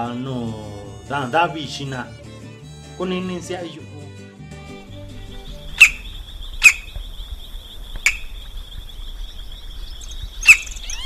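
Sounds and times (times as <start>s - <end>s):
high insect buzz: 5.0s - 9.2s, 9.8s - 11.0s
sharp bird calls: 5.0s - 11.0s.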